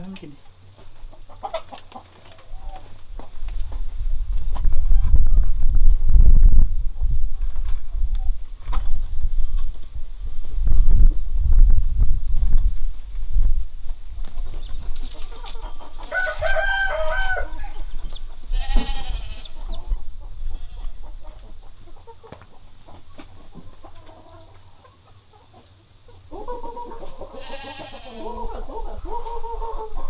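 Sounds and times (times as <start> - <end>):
chickens clucking: 0.0 - 5.9, 6.9 - 30.0
rooster crowing: 16.0 - 19.6.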